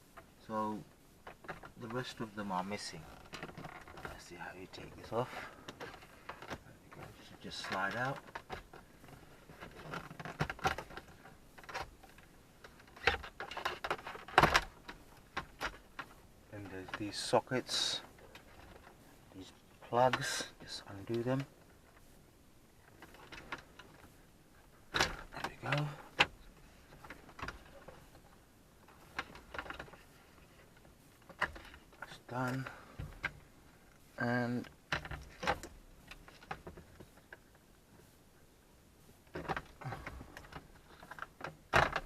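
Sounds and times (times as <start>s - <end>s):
hard plastic clicking and rattling: 34.4s - 37.4s, 39.3s - 42.0s.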